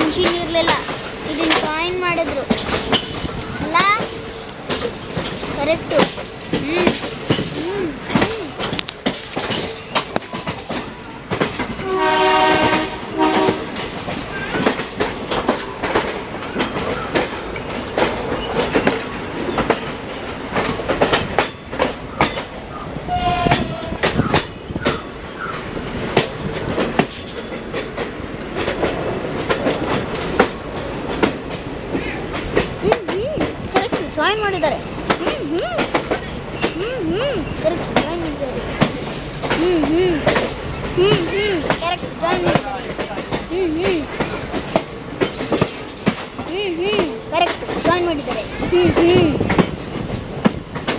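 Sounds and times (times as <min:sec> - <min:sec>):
train wheel and coupling clanks: 0:00.0 - 0:50.9
locomotive horn: 0:11.8 - 0:13.8, 0:23.1 - 0:24.0.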